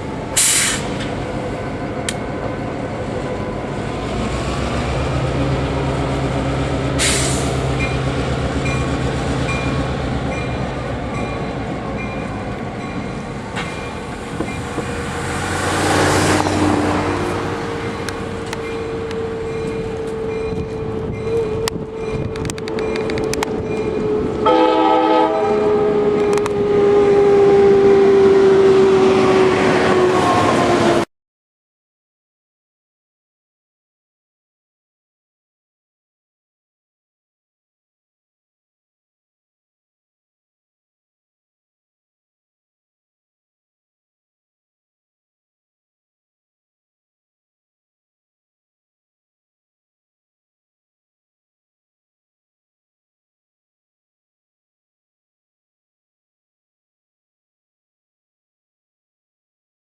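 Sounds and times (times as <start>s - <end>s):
locomotive engine rumble: 0.0s - 24.5s
train horn blasts: 23.9s - 30.8s.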